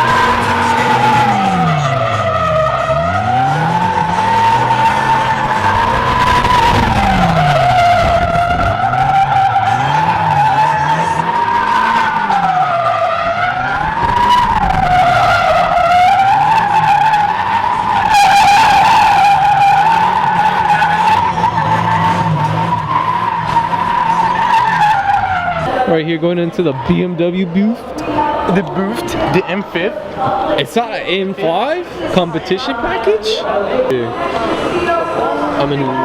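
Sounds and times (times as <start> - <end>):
tyre screech: 0.0 - 25.9
car engine revving: 0.0 - 36.0.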